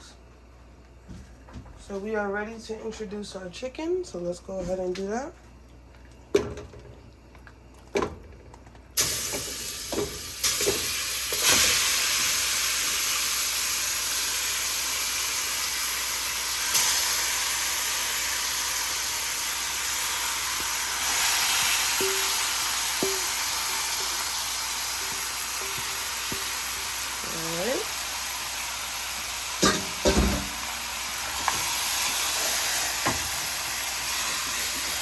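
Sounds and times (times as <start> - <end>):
chicken sizzling in hot oil: 9.0 - 35.0
pot and utensil knocks: 29.6 - 30.6.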